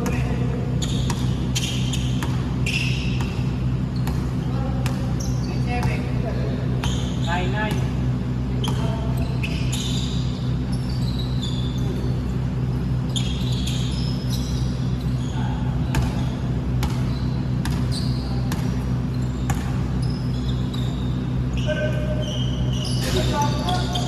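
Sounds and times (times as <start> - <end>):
ball bouncing on hard court: 0.0 - 8.0, 8.6 - 10.3, 15.8 - 20.8
shoe squeaks: 0.0 - 24.0
steady low hum: 0.0 - 24.0.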